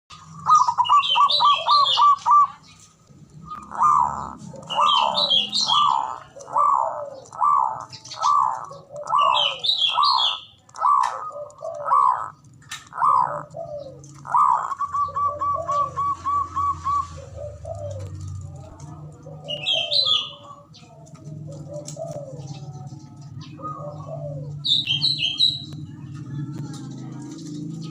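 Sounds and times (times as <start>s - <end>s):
high chirping: 0.1s - 18.1s, 22.4s - 25.9s
doves cooing: 0.1s - 27.9s.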